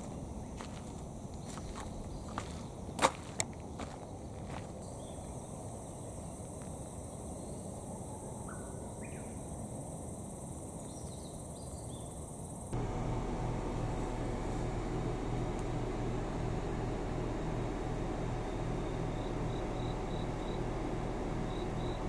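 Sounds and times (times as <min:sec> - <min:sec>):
insects droning: 0:00.0 - 0:22.0
steady low hum: 0:12.7 - 0:22.0.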